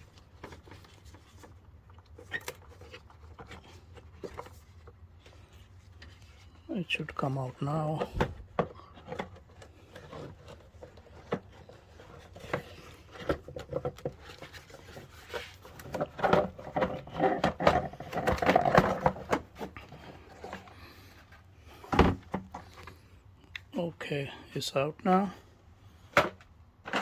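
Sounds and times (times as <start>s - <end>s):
plastic scraping and clicking: 7.6s - 23.7s.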